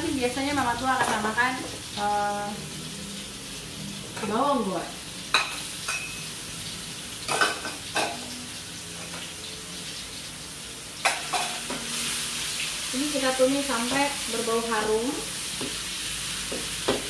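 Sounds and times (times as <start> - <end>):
food sizzling in hot oil: 0.0 - 17.0
metal spatula clinking: 5.4 - 6.2.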